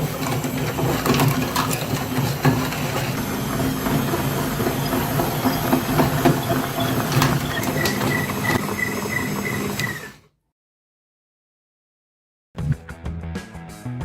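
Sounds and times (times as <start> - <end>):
clicks and rattles: 0.0 - 8.6
small motor running: 0.0 - 10.2.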